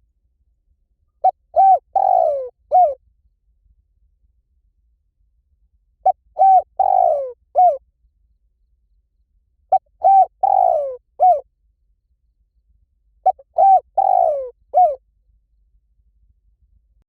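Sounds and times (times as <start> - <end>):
dove cooing: 1.2 - 3.0, 6.0 - 7.8, 9.7 - 11.4, 13.2 - 15.0.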